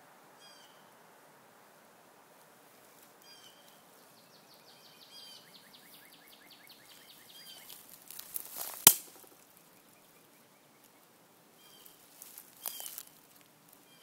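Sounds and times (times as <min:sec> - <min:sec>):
short high bird calls: 0:12.6 - 0:13.1.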